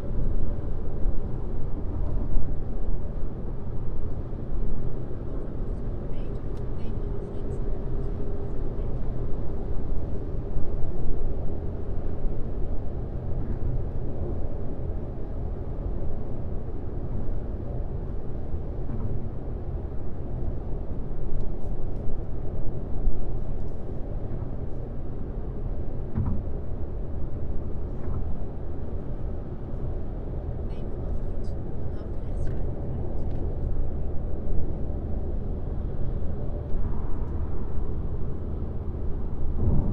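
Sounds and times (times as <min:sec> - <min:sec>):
road and tyre noise: 0:00.0 - 0:39.9.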